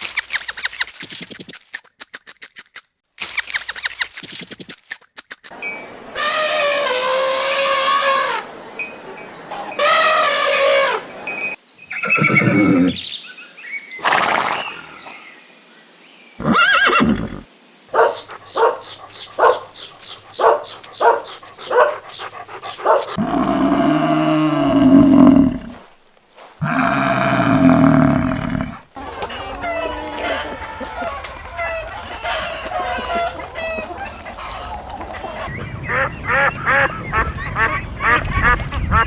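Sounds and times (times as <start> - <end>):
horse neighing: 11.9 - 13.0, 14.0 - 14.9, 16.4 - 17.5, 21.1 - 25.8, 26.6 - 28.9.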